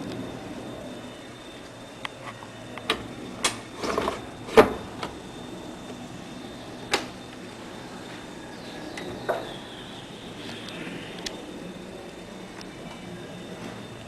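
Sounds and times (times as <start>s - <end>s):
steady low hiss: 0.0s - 14.0s.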